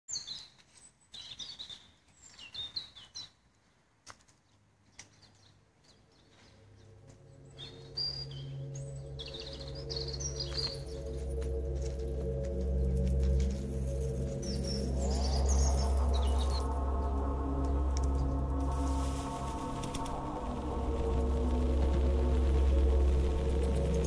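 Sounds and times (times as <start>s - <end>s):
birds chirping: 4.9s - 24.0s
low ambient music drone: 6.0s - 24.0s.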